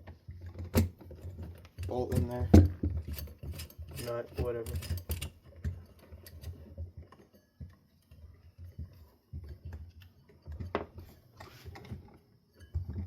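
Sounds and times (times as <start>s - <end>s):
small metal parts clicking: 1.6s - 5.5s.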